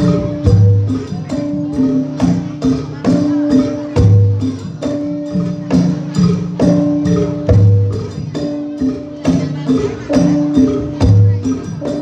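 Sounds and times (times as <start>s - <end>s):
drum strokes: 0.0s - 12.0s
gamelan music: 0.0s - 12.0s.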